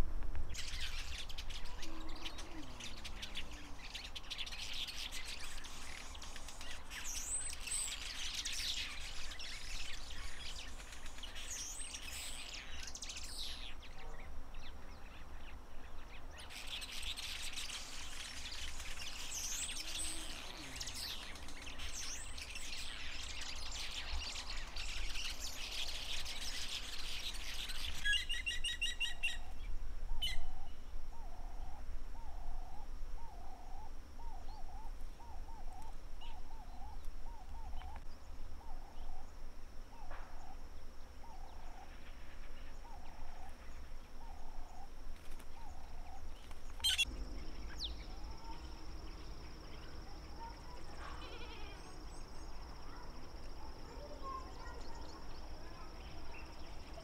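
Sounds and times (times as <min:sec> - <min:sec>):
wild birds chirping and calling: 0:00.6 - 0:57.0.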